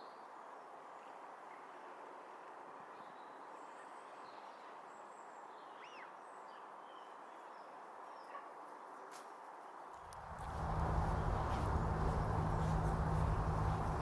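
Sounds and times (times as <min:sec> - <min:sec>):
low outdoor hiss: 0:09.4 - 0:14.0.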